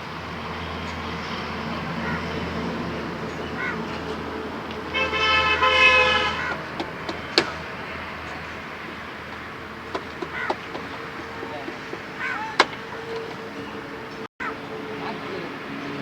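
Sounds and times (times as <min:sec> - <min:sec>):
low engine hum: 0:00.0 - 0:16.0
vehicle horn: 0:00.8 - 0:16.0.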